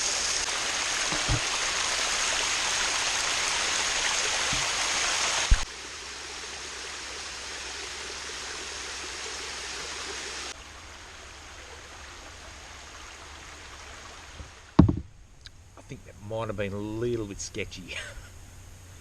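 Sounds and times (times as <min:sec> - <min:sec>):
flowing water: 0:00.0 - 0:15.1
knock: 0:14.8 - 0:15.0.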